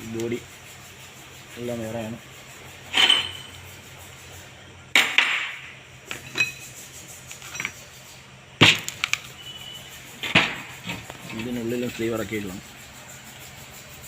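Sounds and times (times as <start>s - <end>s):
metal parts knocking and clinking: 2.9s - 3.6s, 5.0s - 6.7s, 7.4s - 7.8s.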